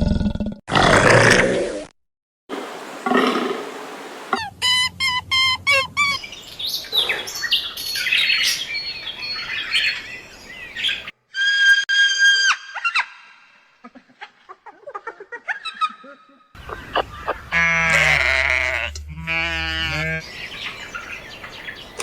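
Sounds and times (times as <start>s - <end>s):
bird calls and chirping: 4.4s - 11.1s, 15.6s - 17.7s, 19.9s - 22.0s.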